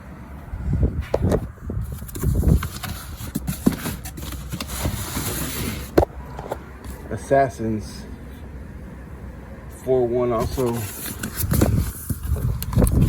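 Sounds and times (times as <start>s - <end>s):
cardboard rustling: 1.0s - 7.2s, 10.3s - 13.0s.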